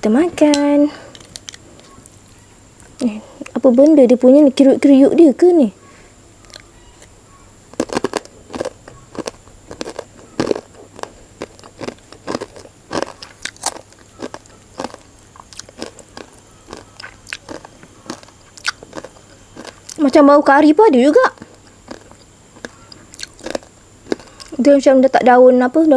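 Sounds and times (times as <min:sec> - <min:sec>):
chewing and crunching fried topping: 0:06.4 - 0:24.8.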